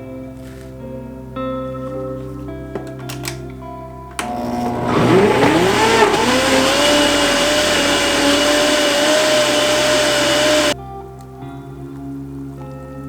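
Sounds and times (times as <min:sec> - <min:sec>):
blender motor spinning: 0:04.2 - 0:10.8.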